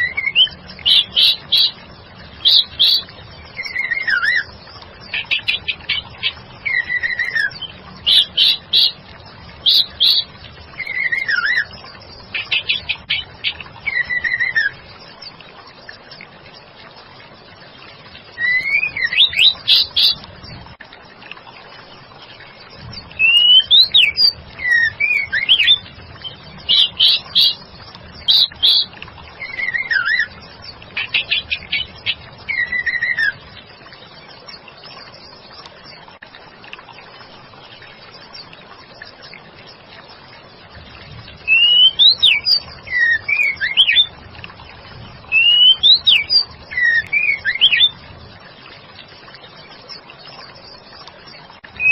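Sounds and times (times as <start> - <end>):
bird whistling and chattering: 41.5 - 44.0.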